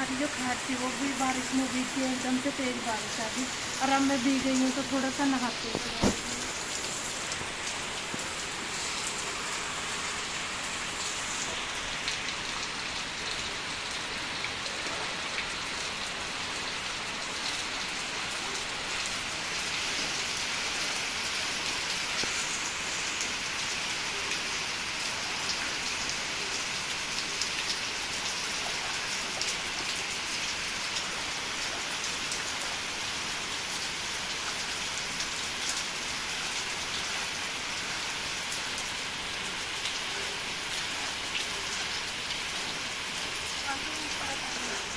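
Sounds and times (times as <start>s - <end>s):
heavy rain falling: 0.0s - 44.9s.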